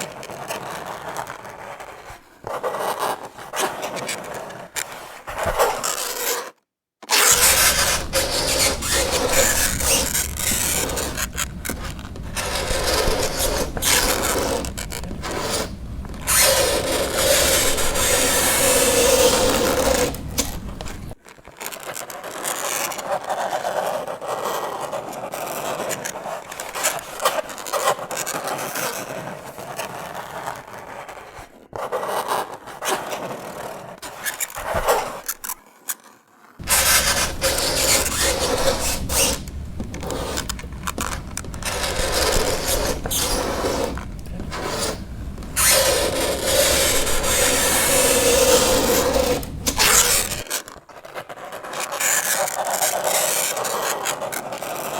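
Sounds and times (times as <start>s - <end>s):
fingernails scraping chalkboard: 7.1s - 21.2s, 36.6s - 50.6s.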